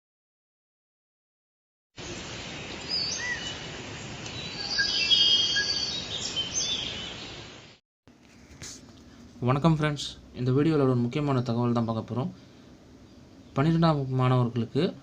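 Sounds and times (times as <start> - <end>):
birds chirping and trilling: 2.0 - 7.8
outdoor background hiss: 2.0 - 15.0.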